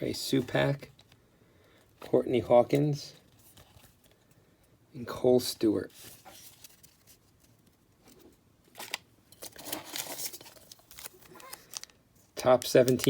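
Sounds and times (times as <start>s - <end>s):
wrapper crinkling and snipping: 6.1s - 13.0s.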